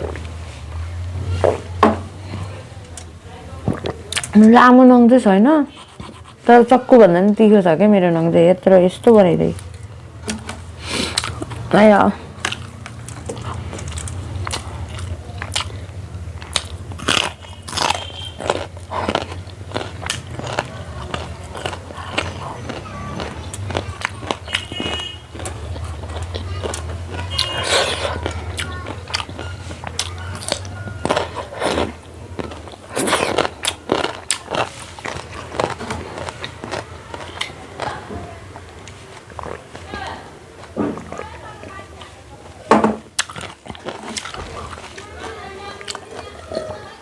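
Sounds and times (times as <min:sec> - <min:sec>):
person chewing and crunching: 0:03.7 - 0:04.4, 0:10.8 - 0:11.7, 0:12.3 - 0:40.0, 0:43.1 - 0:46.8.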